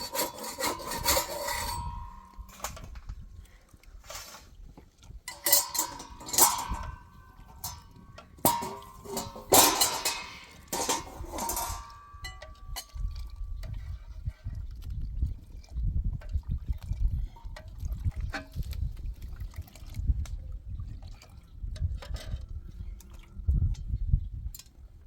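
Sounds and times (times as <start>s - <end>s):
metal objects clinking: 5.3s - 12.9s.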